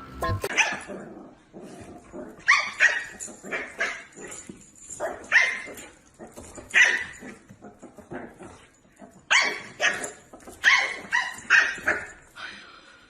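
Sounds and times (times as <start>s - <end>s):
dog barking: 0.5s - 0.9s, 2.4s - 4.3s, 5.0s - 5.9s, 6.7s - 7.3s, 9.3s - 12.2s.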